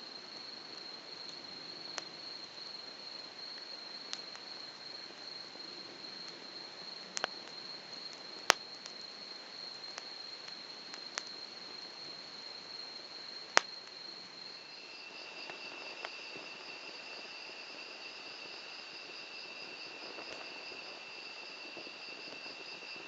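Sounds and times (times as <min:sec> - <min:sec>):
insect trill: 0:00.0 - 0:23.0
wood fire popping and cracking: 0:03.6 - 0:11.5, 0:13.4 - 0:14.1.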